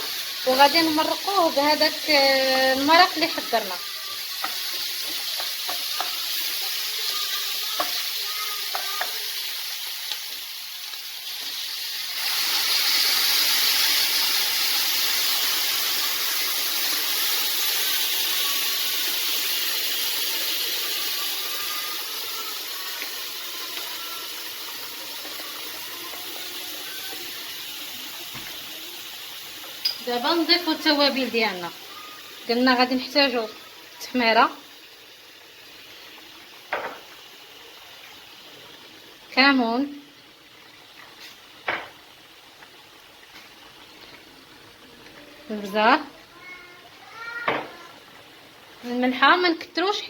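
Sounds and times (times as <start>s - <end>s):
broth poured into hot pan: 0.0s - 49.6s
rice sizzling in hot pan: 0.0s - 50.0s
spoon knocking pan: 2.6s - 10.3s, 28.3s - 28.6s, 29.6s - 31.4s, 36.7s - 37.2s, 41.6s - 42.0s.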